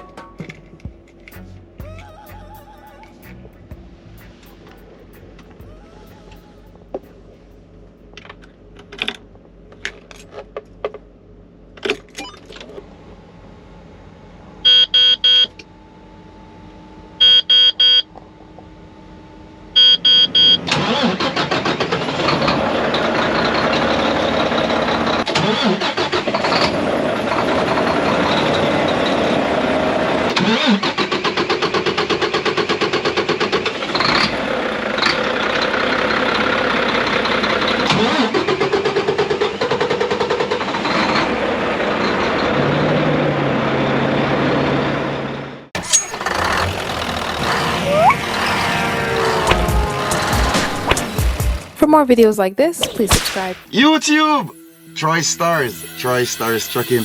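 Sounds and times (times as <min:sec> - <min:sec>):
dashboard warning beeps: 0:14.7 - 0:15.6, 0:17.2 - 0:18.1, 0:19.8 - 0:20.7
diesel engine starter cranking: 0:20.2 - 0:43.4, 0:45.8 - 0:52.0.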